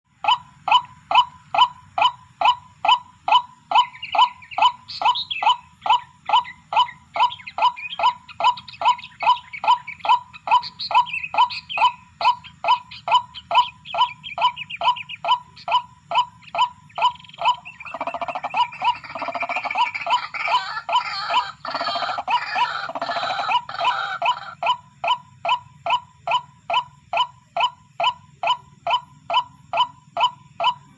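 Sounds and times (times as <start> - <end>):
higher chattering bird calls: 0.2 - 30.9
waterhen calling short falling notes: 17.4 - 24.6.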